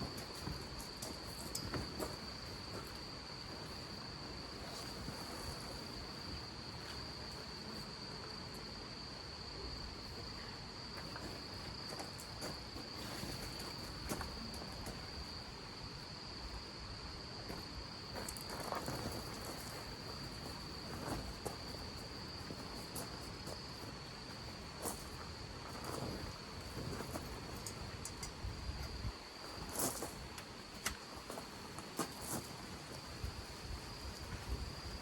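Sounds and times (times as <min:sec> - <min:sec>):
cricket trilling: 0:00.0 - 0:35.0.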